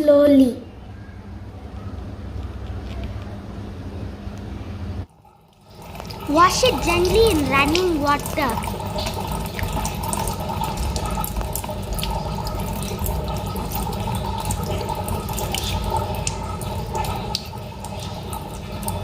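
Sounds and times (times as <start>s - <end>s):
tap water running into sink: 5.1s - 19.0s
egg being washed by hand: 5.5s - 19.0s.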